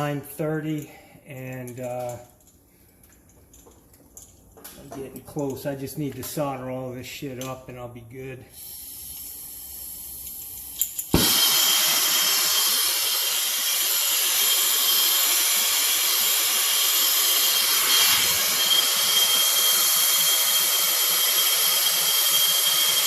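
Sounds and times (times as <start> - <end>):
torch burning with loud hiss: 8.6 - 23.0
faint high whistle: 17.5 - 23.0.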